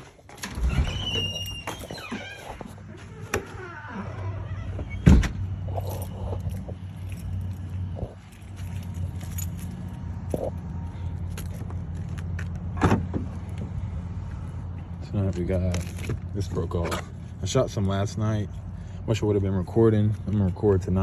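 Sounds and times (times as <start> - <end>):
keys jingling: 5.6 - 10.0.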